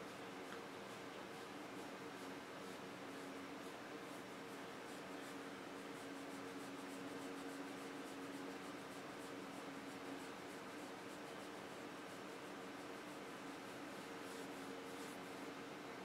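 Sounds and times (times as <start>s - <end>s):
hand brushing dog fur: 3.6s - 15.6s.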